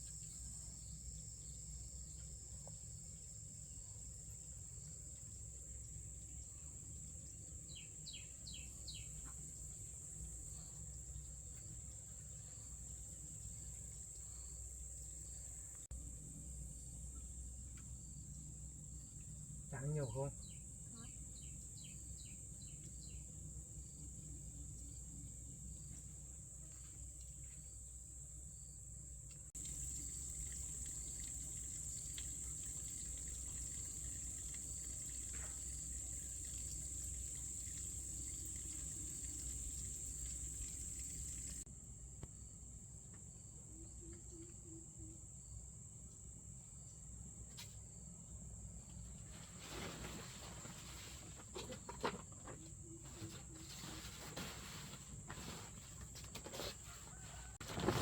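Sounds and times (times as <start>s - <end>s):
insect chorus drone: 0.0s - 54.1s
rustles and knocks: 48.9s - 58.0s.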